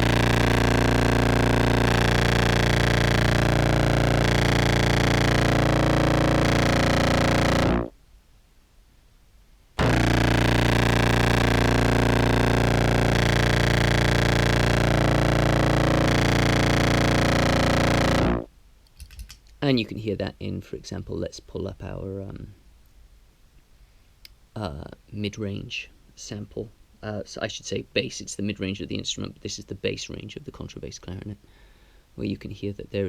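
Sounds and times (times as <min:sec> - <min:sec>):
distorted clarinet drone: 0:00.0 - 0:07.9, 0:09.8 - 0:18.5.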